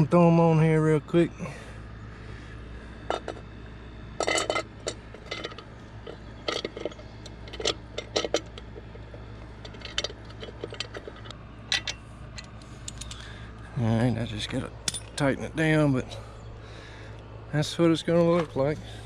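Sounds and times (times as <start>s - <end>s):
metal rattling: 4.2s - 13.3s.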